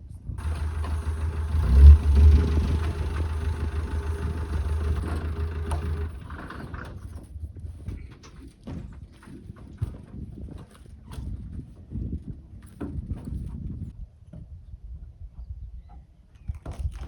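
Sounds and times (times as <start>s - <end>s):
engine humming: 0.4s - 7.1s.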